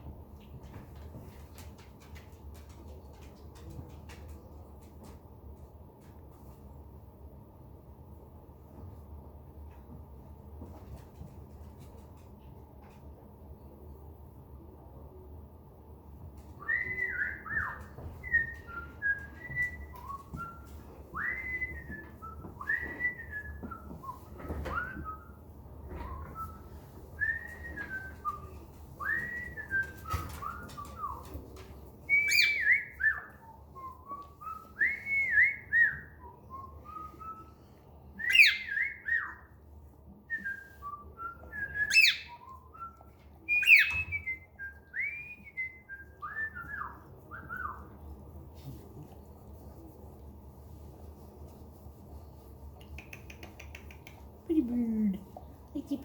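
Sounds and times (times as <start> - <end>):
pet bird whistling: 32.1 - 33.4, 38.2 - 39.4, 41.5 - 47.9.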